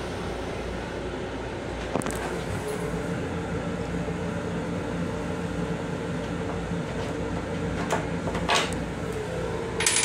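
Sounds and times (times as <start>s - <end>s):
electric railcar humming: 0.0s - 10.0s.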